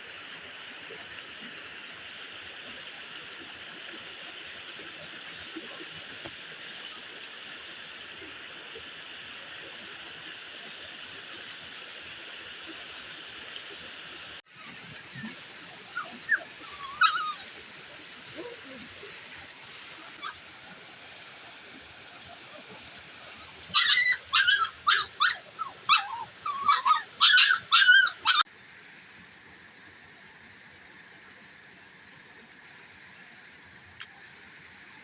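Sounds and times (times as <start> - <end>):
puppy whimpering and yelping: 14.6 - 17.6, 23.7 - 28.4.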